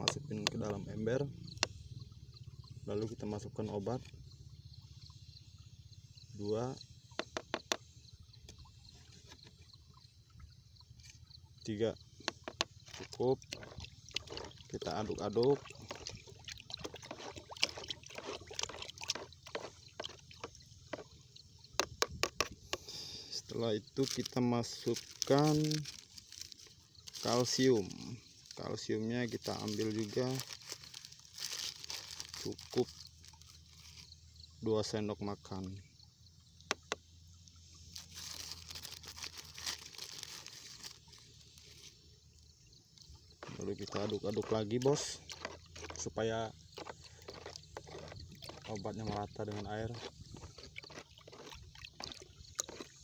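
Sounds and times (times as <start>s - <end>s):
water sloshing in a bucket: 0.0s - 53.0s
plastic packaging crinkling: 24.0s - 28.6s, 29.3s - 34.1s, 38.0s - 41.8s.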